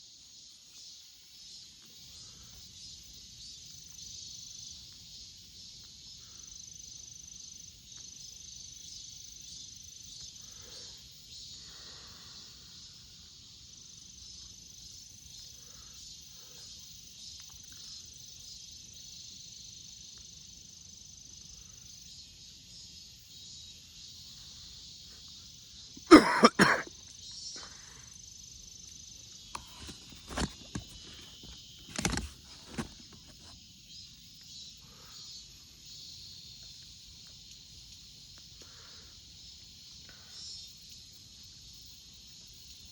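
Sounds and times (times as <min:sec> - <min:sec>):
insect chorus: 0:00.0 - 0:42.9
knocks or rustles: 0:29.6 - 0:33.5.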